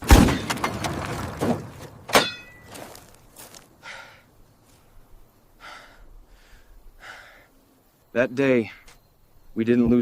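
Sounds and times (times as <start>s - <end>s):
sharp metallic clank: 2.1s - 2.7s.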